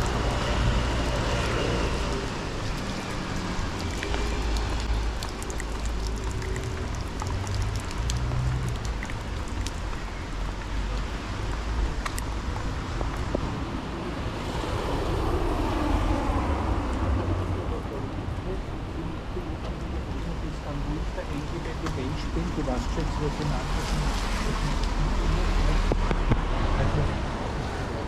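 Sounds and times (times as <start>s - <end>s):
raindrop ticks: 0.0s - 13.5s, 19.6s - 26.5s
traffic: 0.0s - 28.0s
wind rumble on microphone: 23.7s - 28.0s.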